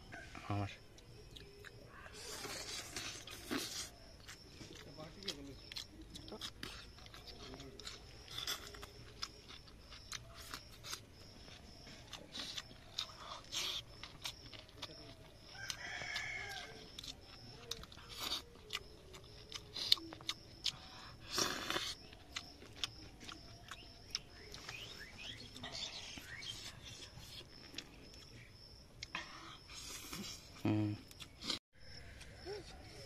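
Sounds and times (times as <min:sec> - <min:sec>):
chewing noodles: 0:01.0 - 0:31.6
rooster crowing: 0:15.5 - 0:17.1.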